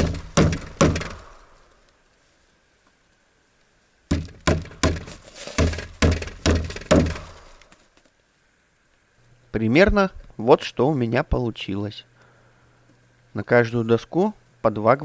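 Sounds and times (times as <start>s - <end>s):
hammer driving nails into wood: 0.0s - 1.6s, 4.1s - 7.8s.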